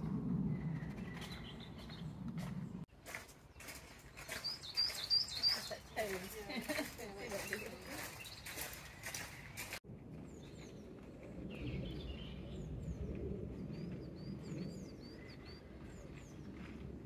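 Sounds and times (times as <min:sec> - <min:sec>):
low outdoor rumble: 0:00.0 - 0:03.6
songbirds chirping: 0:00.1 - 0:17.0.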